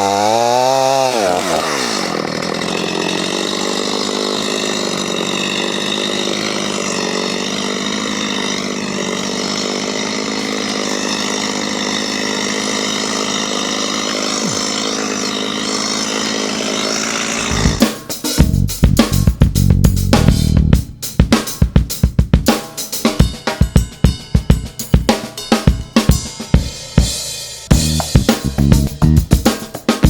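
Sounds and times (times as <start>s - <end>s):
chainsaw cutting tree trunks: 0.0s - 18.0s.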